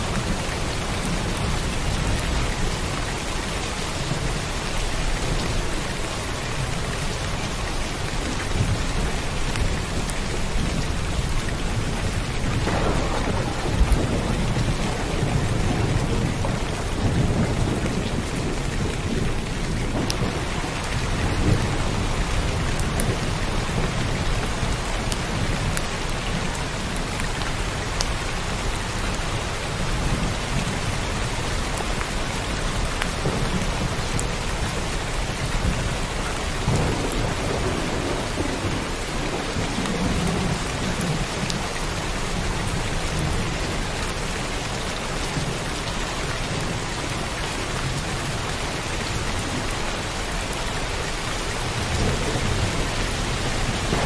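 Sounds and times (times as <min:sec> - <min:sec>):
heavy rain falling: 0:00.0 - 0:54.0
thunder rumbling: 0:08.6 - 0:26.8, 0:32.8 - 0:43.5, 0:51.6 - 0:54.0.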